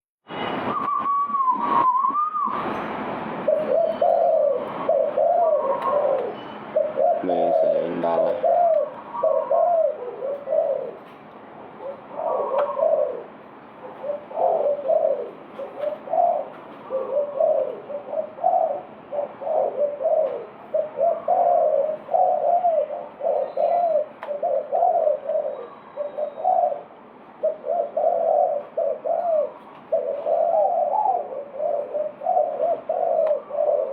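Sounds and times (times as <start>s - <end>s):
wavering whistled note: 0.3s - 2.9s
dove cooing: 3.4s - 33.9s.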